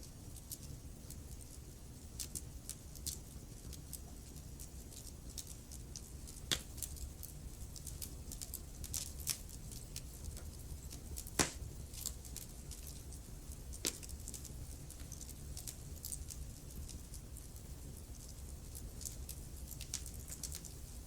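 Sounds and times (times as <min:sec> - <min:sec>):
wood fire crackling: 0:00.0 - 0:21.0
low rumble of flames: 0:00.2 - 0:21.0
loud fire pops: 0:11.2 - 0:11.7.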